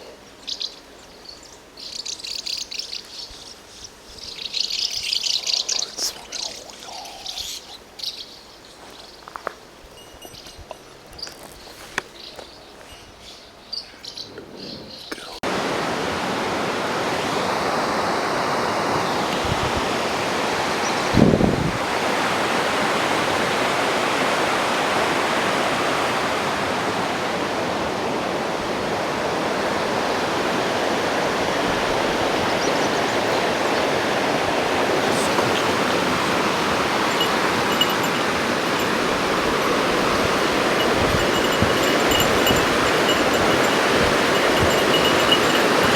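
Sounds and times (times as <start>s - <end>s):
quiet outdoor ambience: 0.0s - 21.1s
waterfall rushing: 15.4s - 19.3s, 21.8s - 45.9s.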